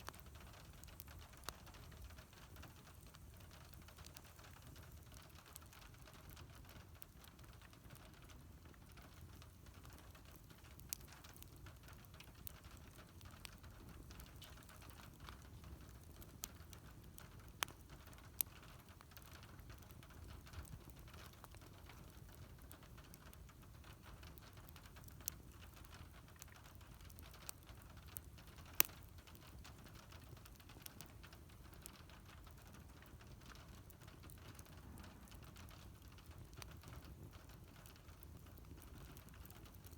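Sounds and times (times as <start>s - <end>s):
faint low rumble: 0.0s - 39.9s
wood fire crackling and popping: 0.0s - 39.9s.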